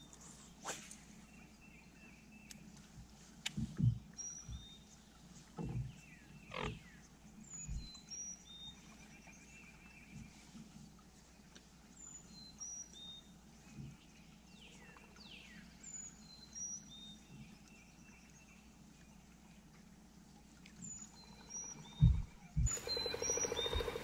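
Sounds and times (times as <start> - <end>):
low thumps: 22.0 - 23.1.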